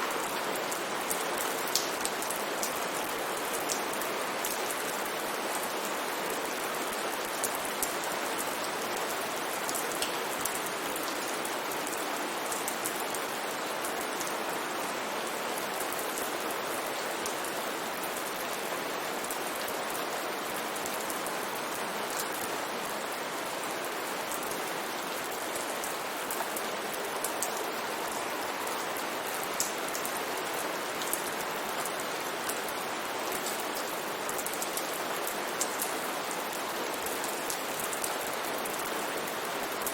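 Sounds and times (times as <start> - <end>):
steady rain hiss: 0.0 - 39.9
raindrops ticking on a surface: 0.1 - 14.4, 23.9 - 39.9.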